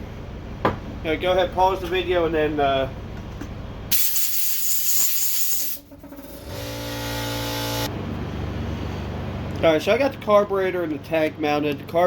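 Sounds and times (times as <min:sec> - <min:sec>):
air compressor hiss: 0:03.9 - 0:06.4
compressor motor humming: 0:05.6 - 0:11.0.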